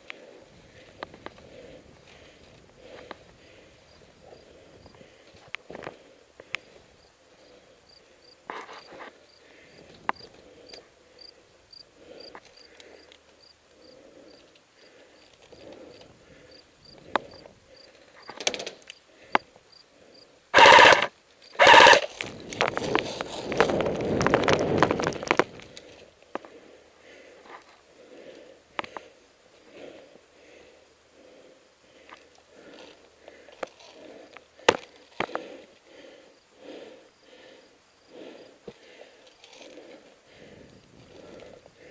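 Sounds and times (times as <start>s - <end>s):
rustling of movement: 0.0s - 41.9s
airsoft gun full-auto bursts: 20.6s - 22.2s
scattered clicks: 20.6s - 26.5s.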